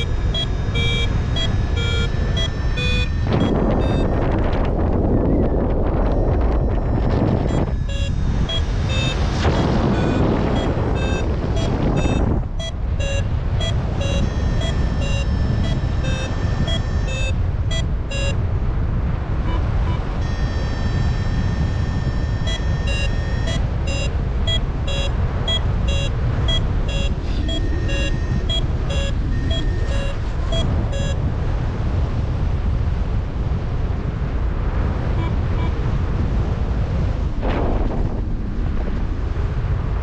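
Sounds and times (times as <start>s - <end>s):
variometer beeping: 0.0s - 18.5s, 19.3s - 31.3s, 35.0s - 35.9s
variometer held tone: 0.0s - 31.5s, 35.0s - 36.0s
wind rush on microphone: 0.0s - 40.0s.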